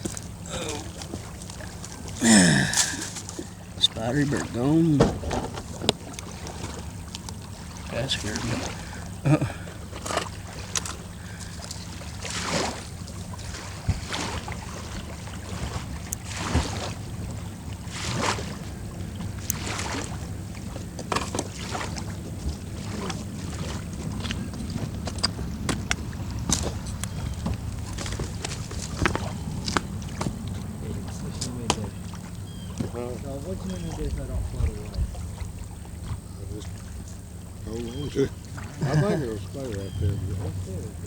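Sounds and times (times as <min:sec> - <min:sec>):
small waves lapping against bank: 0:00.0 - 0:41.0
wind rumble on microphone: 0:10.4 - 0:38.5, 0:39.6 - 0:41.0.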